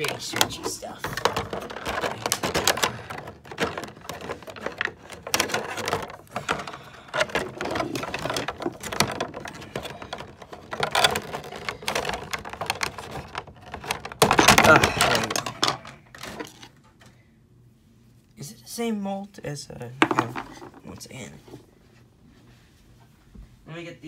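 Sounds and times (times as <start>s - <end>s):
plastic packaging crinkling: 0.0s - 16.8s.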